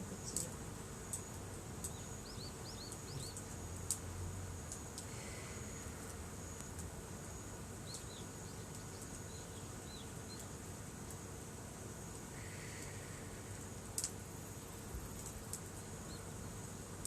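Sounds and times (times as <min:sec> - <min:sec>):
insects buzzing: 0:00.0 - 0:17.0
small birds chirping: 0:00.0 - 0:17.0
faint ticks: 0:00.3 - 0:07.0, 0:12.0 - 0:14.2, 0:15.0 - 0:16.2.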